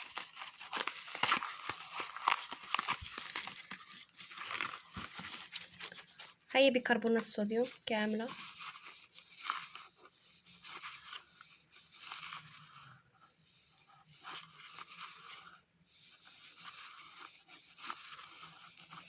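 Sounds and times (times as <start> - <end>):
packet rustling and crinkling: 0.0 - 13.0
powder crackles and scrapes: 0.0 - 19.0.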